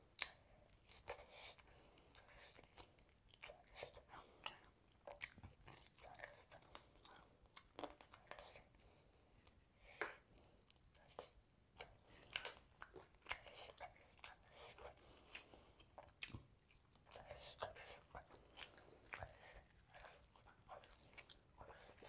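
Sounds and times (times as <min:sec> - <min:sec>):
person chewing and biting: 0:00.1 - 0:08.6.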